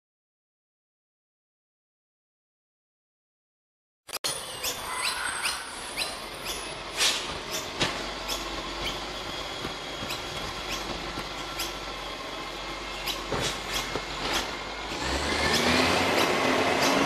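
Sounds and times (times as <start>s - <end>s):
bird chirping: 4.3s - 9.2s, 12.8s - 14.0s.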